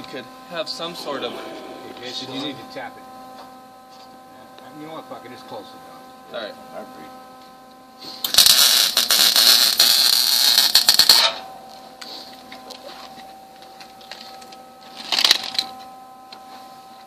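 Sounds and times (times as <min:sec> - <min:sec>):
welding machine hum: 0:07.0 - 0:15.9
welding arc crackling: 0:08.1 - 0:11.4.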